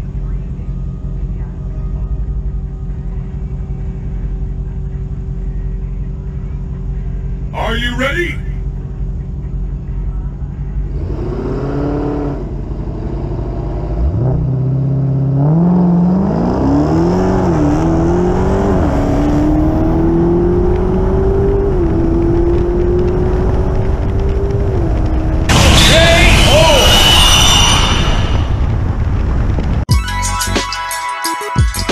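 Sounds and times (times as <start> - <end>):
car engine revving and accelerating: 10.7 - 25.5.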